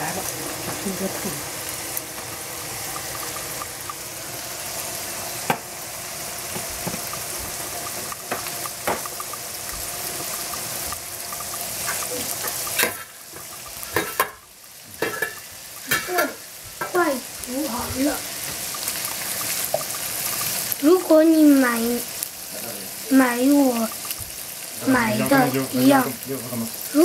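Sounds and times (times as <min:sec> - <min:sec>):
bacon sizzling in a frying pan: 0:00.0 - 0:27.0
food sizzling on a stove: 0:00.0 - 0:27.0
wooden spoon stirring and tapping: 0:06.5 - 0:14.4.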